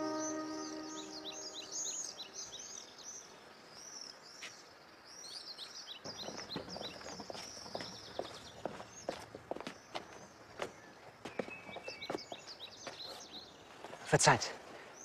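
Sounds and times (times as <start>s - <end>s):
small birds chirping: 0.0s - 15.0s
footsteps: 6.1s - 13.2s.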